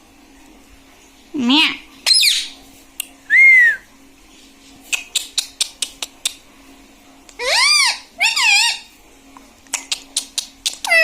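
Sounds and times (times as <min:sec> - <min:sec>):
parrot calls: 0:02.0 - 0:02.6, 0:07.4 - 0:08.9, 0:09.8 - 0:11.0
parrot clicking: 0:09.7 - 0:11.0.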